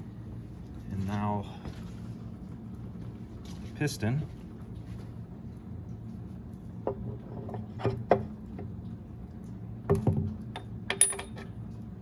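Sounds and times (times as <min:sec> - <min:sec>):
steady low hum: 0:00.0 - 0:12.0
metal parts clicking and knocking: 0:10.6 - 0:11.5.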